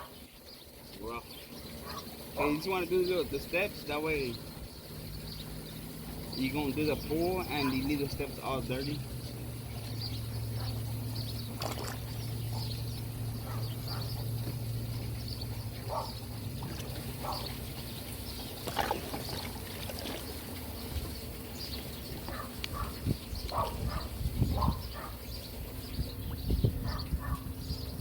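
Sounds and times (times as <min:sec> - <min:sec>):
pool pump humming: 0:00.0 - 0:28.0
pool water splashing: 0:00.0 - 0:28.0.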